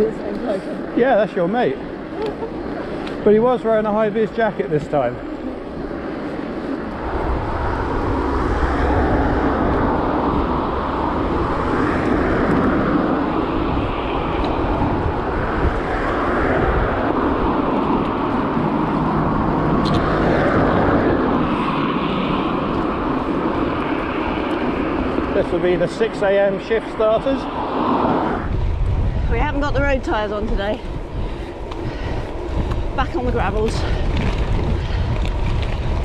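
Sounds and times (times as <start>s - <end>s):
wind rushing across microphone: 0.0s - 36.0s
tyre noise on gravel: 31.5s - 36.0s.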